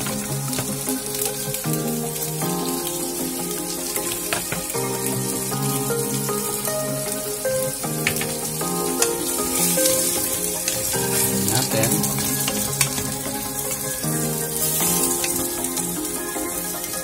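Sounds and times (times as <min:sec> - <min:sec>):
background music: 0:00.0 - 0:17.0
chicken sizzling in a pan: 0:00.0 - 0:17.0.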